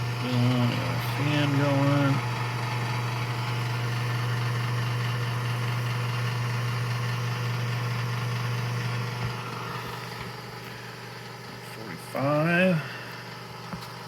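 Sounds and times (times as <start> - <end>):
convection fan whirring: 0.0 - 14.0
toaster oven electrical hum: 0.0 - 14.0.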